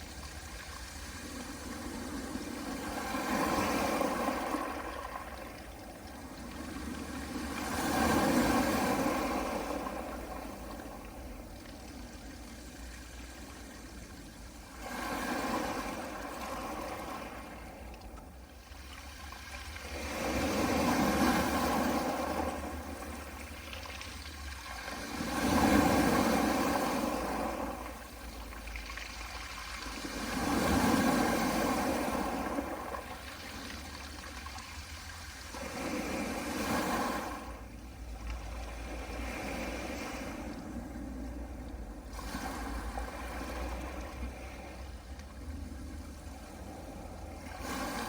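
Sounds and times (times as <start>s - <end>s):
waves breaking on pebbles: 0.7s - 5.5s, 14.6s - 17.8s, 18.8s - 37.6s, 47.4s - 48.0s.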